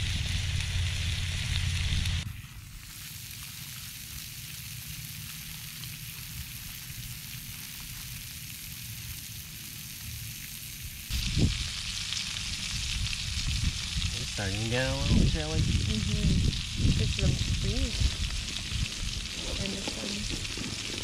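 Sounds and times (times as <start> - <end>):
food sizzling in a pan: 0.0 - 21.0
wind rumble on microphone: 11.1 - 11.9, 12.6 - 21.0.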